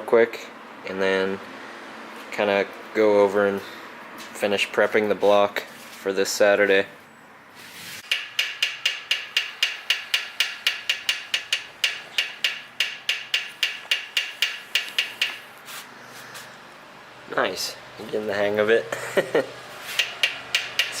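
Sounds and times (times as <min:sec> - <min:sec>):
small hammer tapping metal: 0:08.0 - 0:15.5, 0:20.0 - 0:21.0.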